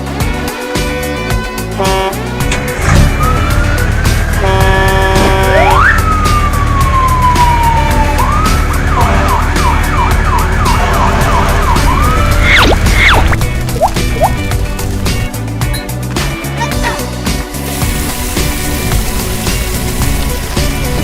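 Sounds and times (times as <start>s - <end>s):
background music: 0.0s - 21.0s
chord-like honk: 1.1s - 5.9s
whistle-like gliding tone: 11.7s - 13.4s
quick upward swoops: 12.2s - 14.4s.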